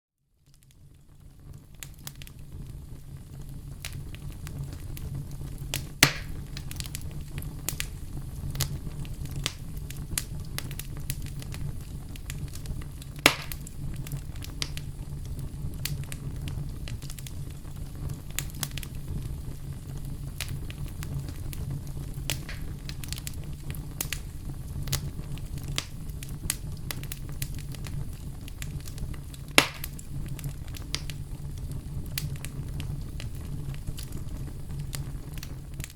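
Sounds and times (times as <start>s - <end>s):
low fire rumble: 0.3s - 35.9s
firewood crackling: 0.5s - 35.9s
sharp wood pops: 6.0s - 6.3s, 13.3s - 13.6s, 29.6s - 29.9s.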